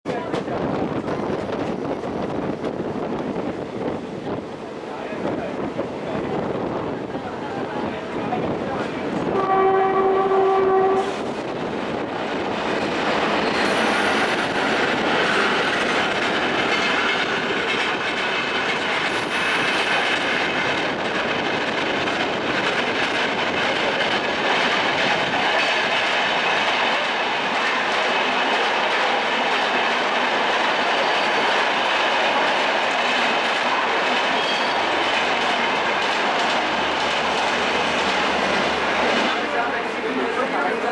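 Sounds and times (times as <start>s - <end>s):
train wheels rumbling on rails: 0.0s - 40.9s
train horn: 9.3s - 11.2s
high-pitched wheel squeals: 34.4s - 34.9s.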